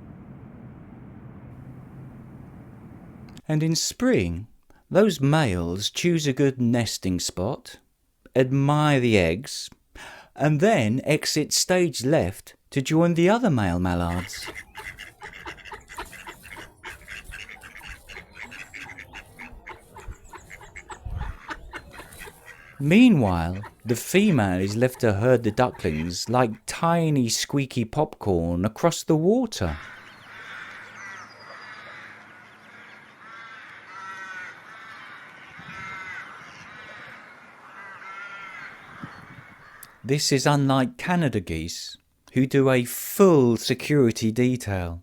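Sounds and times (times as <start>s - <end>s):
ducks calling: 13.8s - 26.8s, 29.6s - 40.0s.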